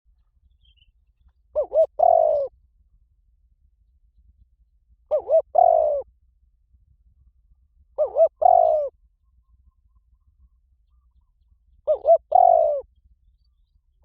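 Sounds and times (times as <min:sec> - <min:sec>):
dove cooing: 0:01.5 - 0:02.5, 0:05.1 - 0:06.1, 0:08.0 - 0:09.0, 0:11.8 - 0:12.9.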